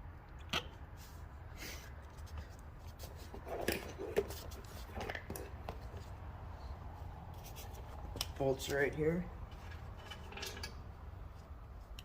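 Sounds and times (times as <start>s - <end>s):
parts clicking and knocking: 9.5s - 10.9s.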